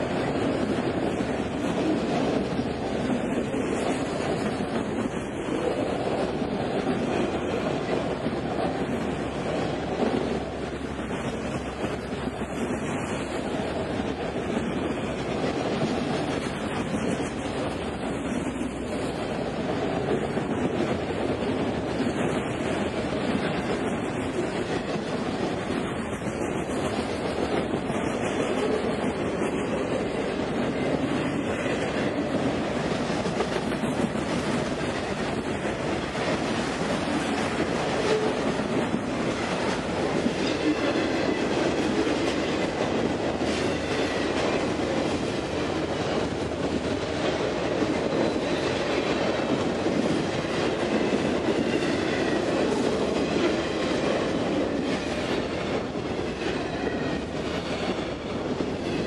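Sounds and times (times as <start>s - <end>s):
freight train rumbling past: 0.0s - 59.0s
wheels clacking over rail joints: 0.0s - 59.0s.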